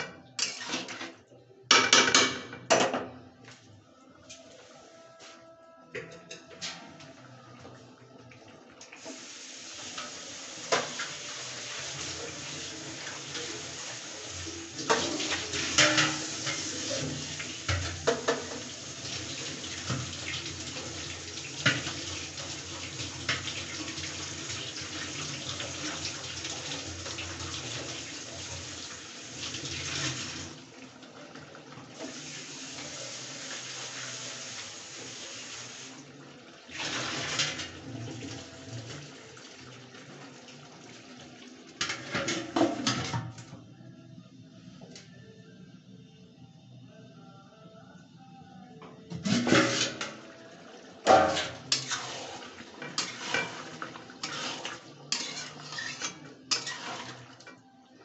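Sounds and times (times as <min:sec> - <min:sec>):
curry sizzling and bubbling: 0:09.0 - 0:43.2, 0:49.2 - 0:57.6.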